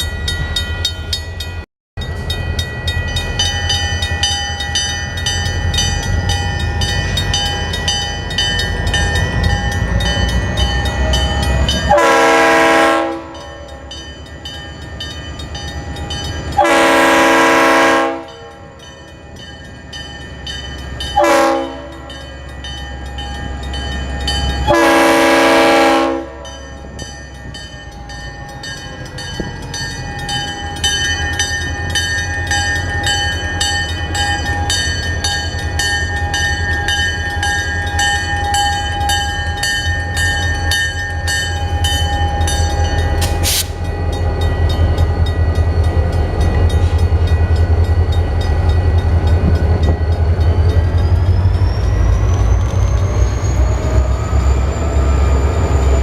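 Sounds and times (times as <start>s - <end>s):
crossing bell ringing: 0.0s - 56.0s
locomotive air horn blast: 11.9s - 13.4s, 16.6s - 18.4s, 21.2s - 21.9s, 24.7s - 26.4s, 43.2s - 43.8s.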